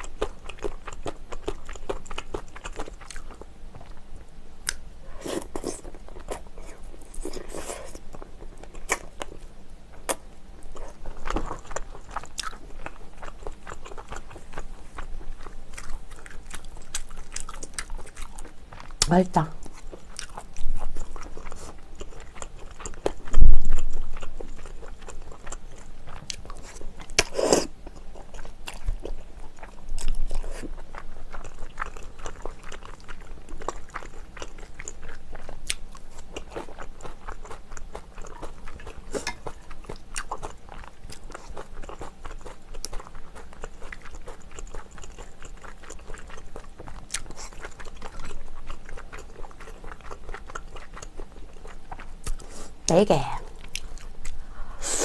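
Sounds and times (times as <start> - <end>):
wet chewing with mouth clicks: 10.0 - 55.0.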